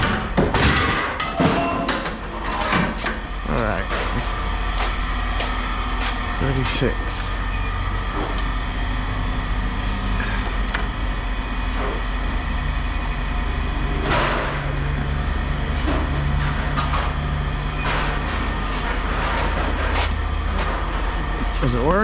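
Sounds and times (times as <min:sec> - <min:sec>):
engine humming: 0:03.0 - 0:22.0.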